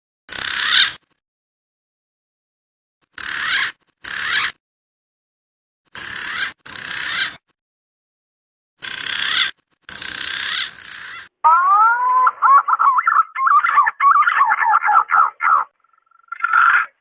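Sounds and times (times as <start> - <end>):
pigeon calling: 8.8 - 17.0.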